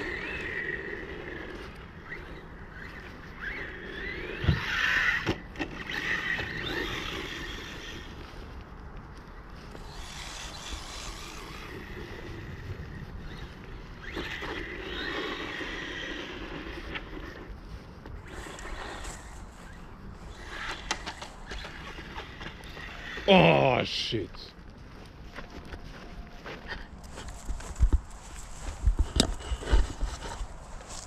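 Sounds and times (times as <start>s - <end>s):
electric motor whining: 0.0s - 8.4s, 9.7s - 23.7s
wind rumble on microphone: 0.0s - 23.3s, 24.5s - 31.0s.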